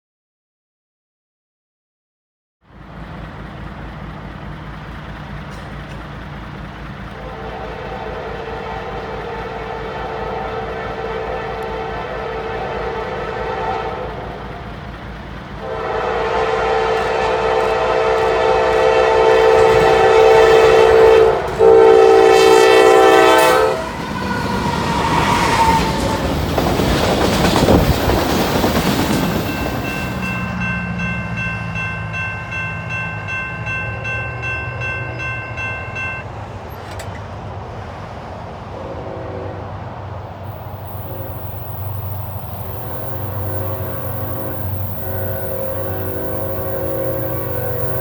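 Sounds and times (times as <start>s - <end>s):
locomotive engine and wheel noise: 2.6s - 48.0s
train rumbling by: 2.6s - 48.0s
locomotive horn blasts: 7.2s - 14.6s, 15.6s - 26.2s, 38.8s - 39.8s, 40.6s - 48.0s
high steady tones: 23.4s - 36.3s.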